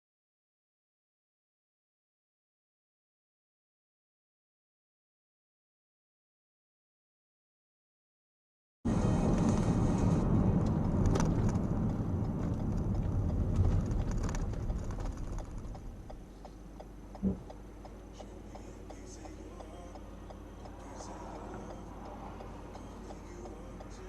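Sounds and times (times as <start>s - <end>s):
car road and engine noise: 8.9s - 24.0s
steady ticking: 10.3s - 24.0s.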